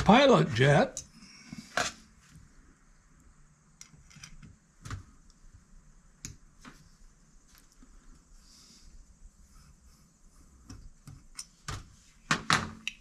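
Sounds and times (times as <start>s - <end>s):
faint hiss: 5.0s - 11.0s.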